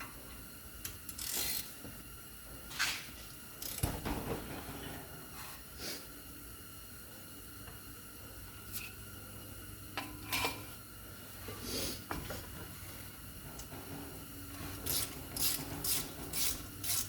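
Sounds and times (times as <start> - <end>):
ratchet wrench clicking: 0.8 - 1.7, 3.6 - 3.9, 14.8 - 17.0.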